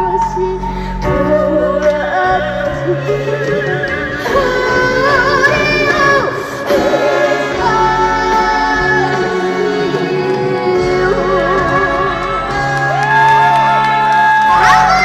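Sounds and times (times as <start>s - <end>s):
girl singing: 4.2s - 6.5s.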